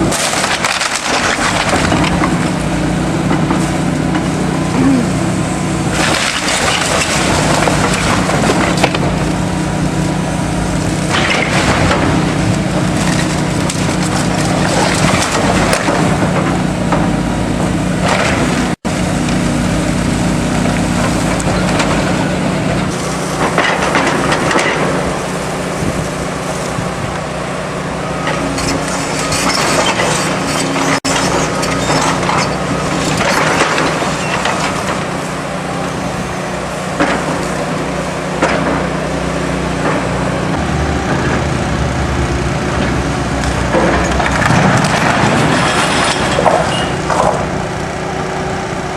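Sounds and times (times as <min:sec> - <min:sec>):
debris cracking and crunching: 0:00.0 - 0:02.5, 0:05.9 - 0:09.4, 0:11.0 - 0:16.6, 0:28.3 - 0:35.2, 0:42.8 - 0:47.6
excavator diesel engine running: 0:00.0 - 0:48.9.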